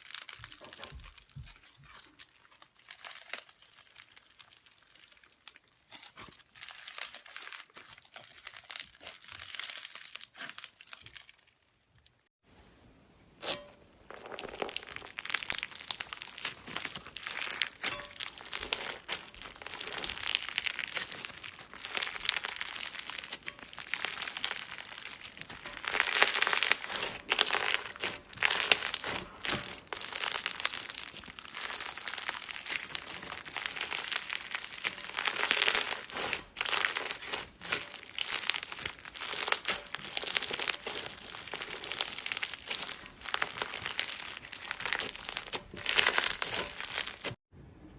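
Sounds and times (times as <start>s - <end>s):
crunchy slime crackling: 0.0s - 12.3s, 13.3s - 47.4s.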